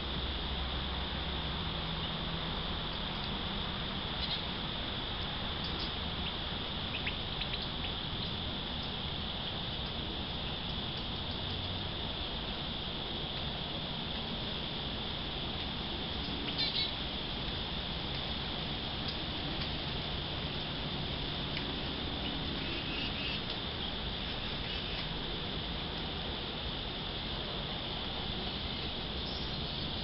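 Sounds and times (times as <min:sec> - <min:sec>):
high-pitched insect drone: 0:00.0 - 0:30.0
faint bird chirps: 0:04.2 - 0:04.5, 0:05.6 - 0:09.0, 0:16.2 - 0:17.0, 0:22.6 - 0:25.1, 0:28.7 - 0:30.0.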